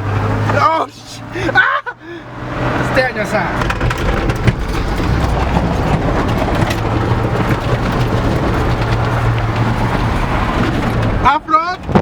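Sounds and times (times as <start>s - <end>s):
road noise: 0.0s - 12.0s
truck engine drone: 0.0s - 12.0s
small rattles and knocks: 3.6s - 12.0s.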